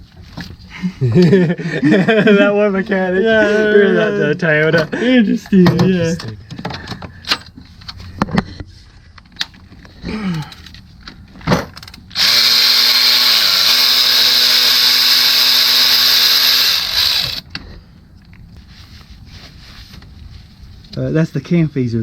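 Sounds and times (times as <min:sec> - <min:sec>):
power tool running: 0:12.1 - 0:17.5.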